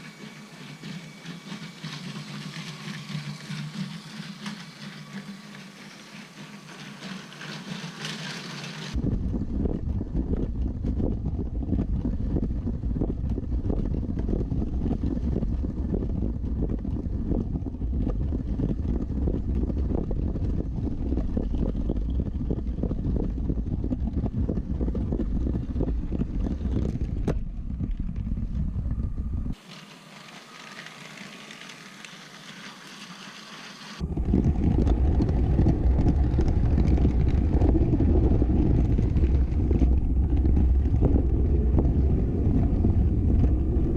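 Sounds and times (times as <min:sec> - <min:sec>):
toy train running on plastic track: 0:00.0 - 0:09.0, 0:29.6 - 0:34.0.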